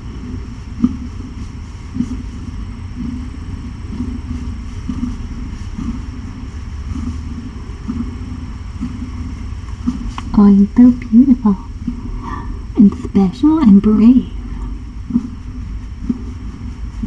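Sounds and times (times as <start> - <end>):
cat purring: 10.3 - 15.4.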